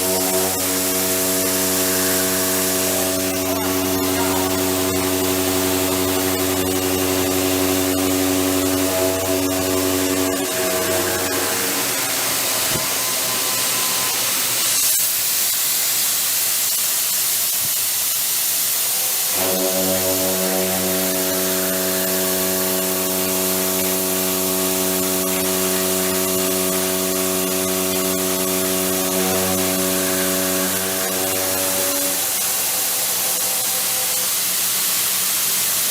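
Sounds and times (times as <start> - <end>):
hum of pitched tones: 0.0 - 14.6, 19.3 - 34.6
milling machine hiss: 0.0 - 35.9.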